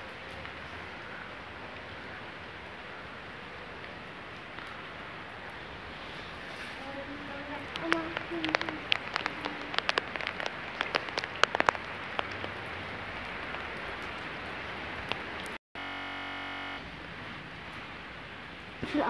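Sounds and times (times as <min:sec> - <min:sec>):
raindrops splatting on a surface: 0:00.0 - 0:15.6, 0:16.9 - 0:19.0
rain falling: 0:00.0 - 0:19.0
steady even buzz: 0:15.8 - 0:16.8.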